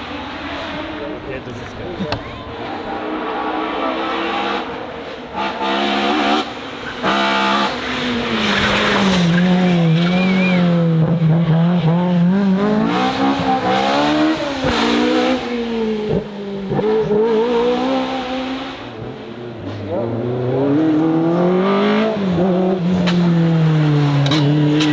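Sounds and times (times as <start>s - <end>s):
race car engine at high revs: 0.0s - 24.9s
tyre squeal: 0.3s - 3.0s.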